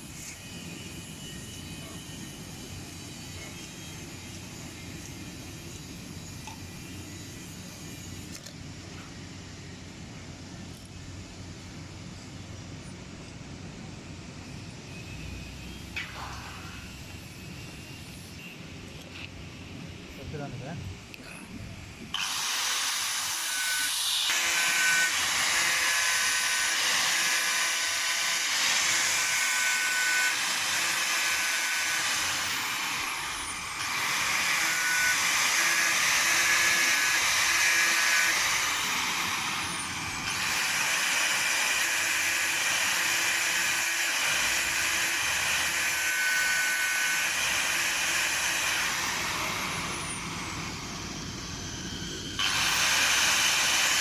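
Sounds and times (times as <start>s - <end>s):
faint whine: 0.0s - 22.1s
power tool grinding: 22.1s - 54.0s.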